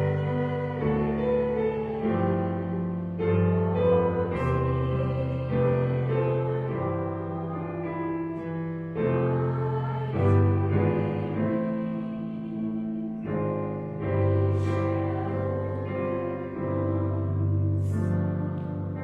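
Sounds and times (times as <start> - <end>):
keyboard playing hymn chords: 0.0 - 19.0.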